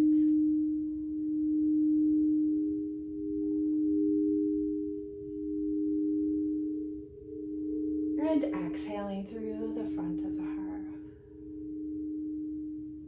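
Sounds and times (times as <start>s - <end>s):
singing bowl low tone: 0.0s - 13.0s.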